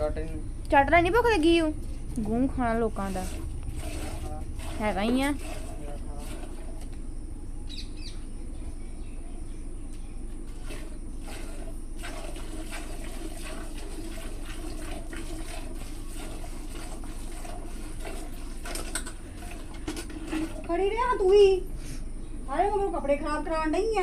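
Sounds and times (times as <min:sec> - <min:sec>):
steady background hum: 0:00.0 - 0:24.0
milk squirting into a pail: 0:02.9 - 0:07.0, 0:10.4 - 0:20.7.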